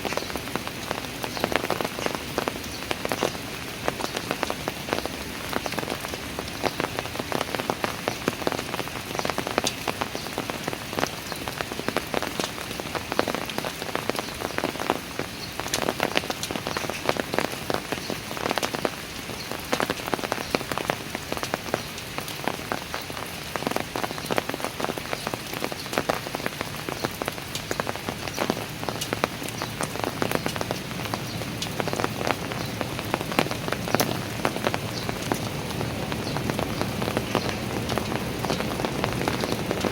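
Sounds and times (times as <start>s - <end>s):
rain falling on stairs: 0.0s - 39.9s
raindrops spattering: 0.0s - 39.9s.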